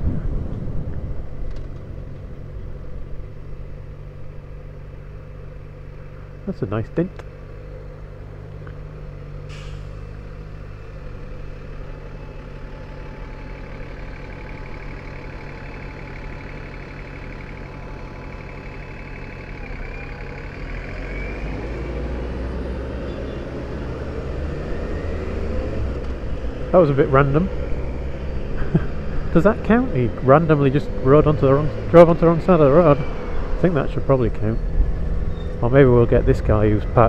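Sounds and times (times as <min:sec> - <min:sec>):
heavy vehicle rumble: 0:00.0 - 0:37.0
traffic engines: 0:00.0 - 0:37.0
short hiss: 0:09.5 - 0:10.0
motorcycle engine running: 0:10.7 - 0:21.0.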